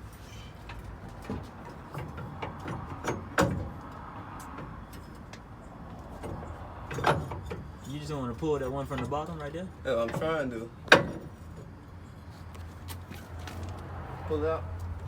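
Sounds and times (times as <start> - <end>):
metal knocks and clanks: 0.7 - 5.5, 6.2 - 7.8, 8.9 - 11.8.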